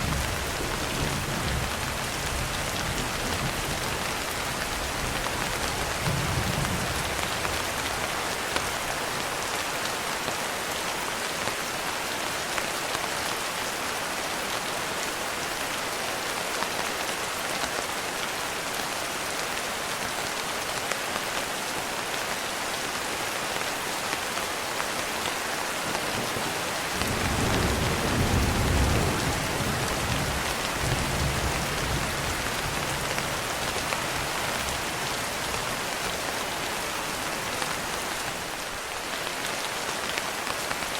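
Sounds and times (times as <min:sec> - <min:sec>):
heavy rain falling: 0:00.0 - 0:40.9
thunder rumbling: 0:26.1 - 0:33.4.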